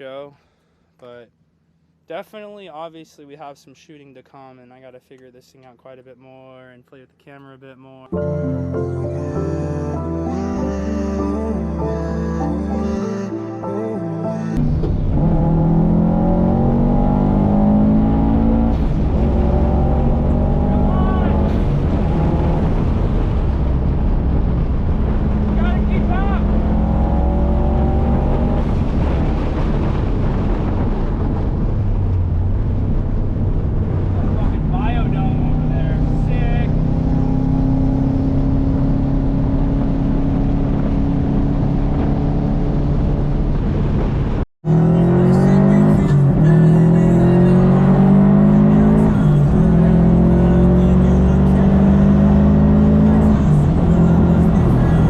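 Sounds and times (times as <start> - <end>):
car engine accelerating: 14.6 - 55.0
road noise: 14.6 - 55.0.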